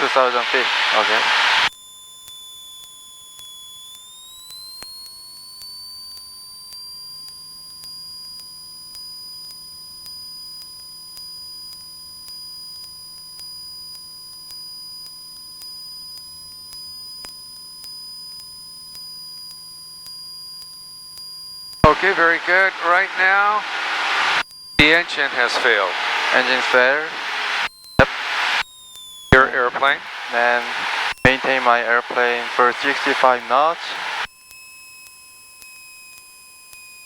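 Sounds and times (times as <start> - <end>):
electrical whine and tones: 0.0 - 1.7, 21.8 - 34.3.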